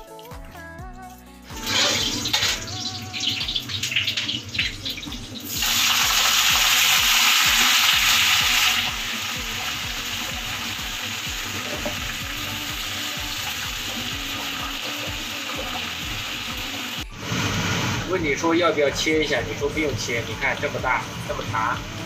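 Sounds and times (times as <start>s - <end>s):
vegetables sizzling in hot oil: 1.6s - 22.0s
loud hiss of wet leaves in oil: 17.1s - 18.2s.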